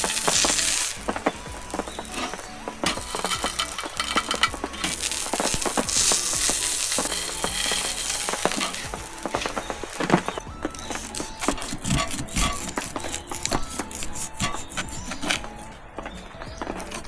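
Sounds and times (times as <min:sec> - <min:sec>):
food sizzling in a pan: 0:00.0 - 0:10.4
utensil stirring in a pan: 0:00.0 - 0:15.6.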